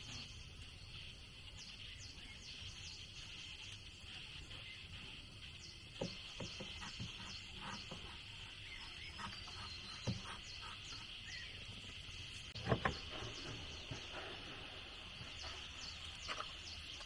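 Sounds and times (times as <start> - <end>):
sharp knocks: 12.6 - 14.7.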